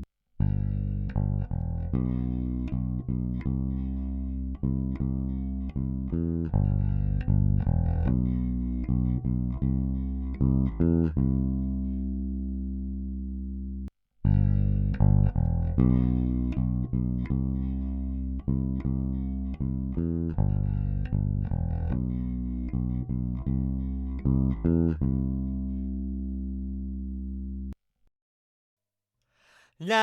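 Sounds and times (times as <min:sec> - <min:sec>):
bass guitar plucked notes: 0:00.0 - 0:27.8.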